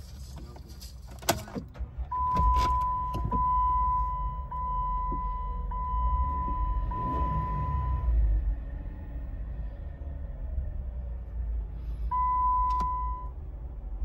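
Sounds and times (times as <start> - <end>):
car engine starting and idling: 0.0 - 14.0
dashboard warning chime: 2.1 - 8.1, 12.1 - 13.4.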